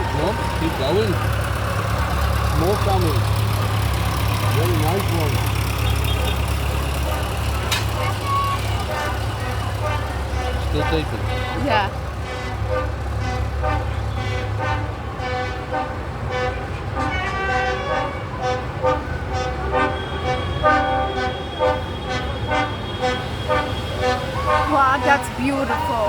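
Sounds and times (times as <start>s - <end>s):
tractor engines rumbling: 0.0s - 26.0s
short horn toots: 4.4s - 24.8s.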